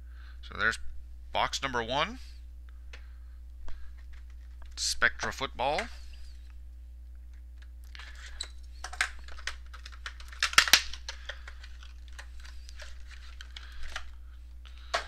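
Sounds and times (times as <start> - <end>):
packaging crinkling and scraping: 7.9 - 14.2.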